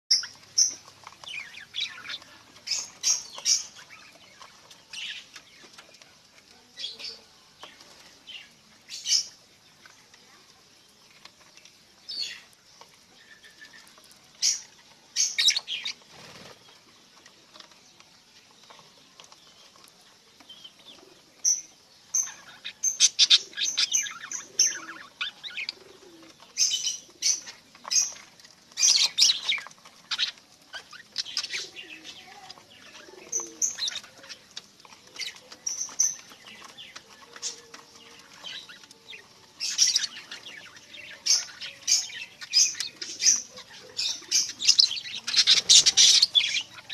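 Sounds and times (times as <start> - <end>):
budgerigars chirping: 39.8 - 46.9.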